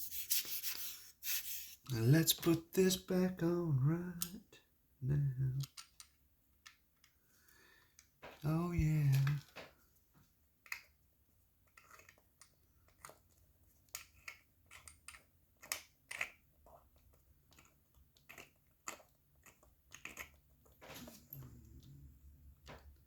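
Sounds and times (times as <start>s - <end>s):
small metal parts clicking: 5.6s - 6.8s.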